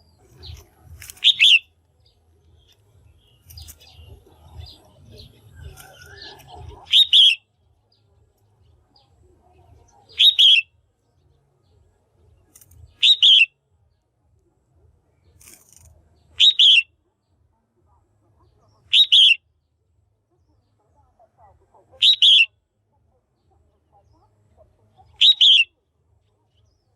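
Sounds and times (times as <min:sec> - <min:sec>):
bird chirping: 0:00.0 - 0:14.0, 0:15.1 - 0:17.4, 0:18.4 - 0:19.4, 0:21.9 - 0:22.5, 0:23.3 - 0:26.9.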